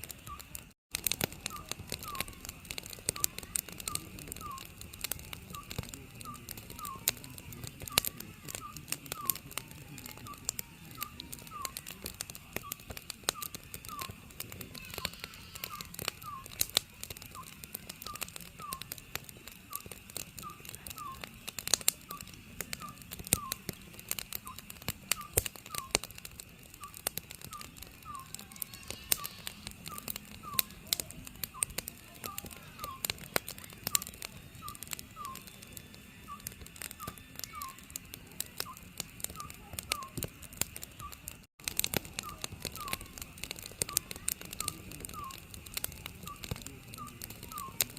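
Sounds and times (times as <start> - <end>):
wood fire crackling and popping: 0.0 - 47.9
owl hooting: 1.4 - 2.4, 3.1 - 4.7, 12.6 - 16.6, 26.8 - 30.8, 39.4 - 40.2, 42.2 - 43.2, 44.6 - 45.5.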